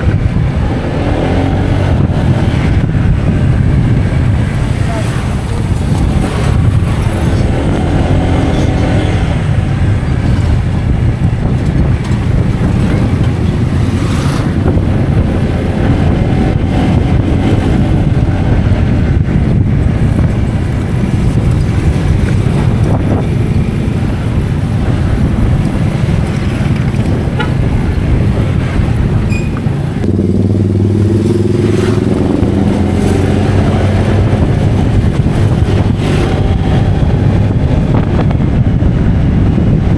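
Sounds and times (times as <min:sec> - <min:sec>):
vehicle engine rumbling: 0:00.0 - 0:39.9.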